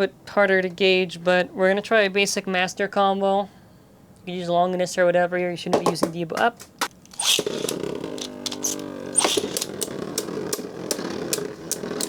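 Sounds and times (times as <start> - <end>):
tops clacking together: 5.8 - 12.0
spinning top launch: 7.1 - 12.0
whirr of spinning tops: 7.1 - 12.0.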